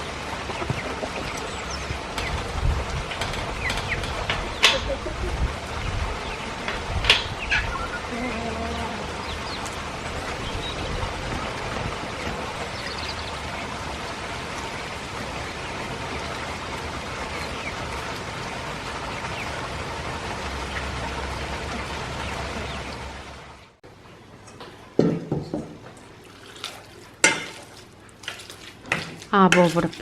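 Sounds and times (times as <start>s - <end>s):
steady rain falling: 0.0s - 23.8s
bird calling: 3.5s - 13.7s.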